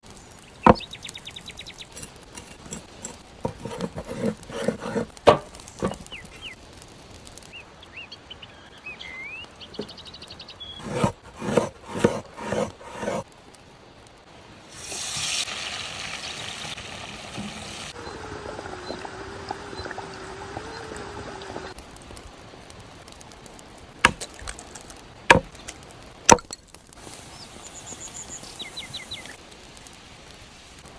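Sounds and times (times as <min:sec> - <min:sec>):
hiss: 0:14.7 - 0:22.3, 0:27.0 - 0:30.9.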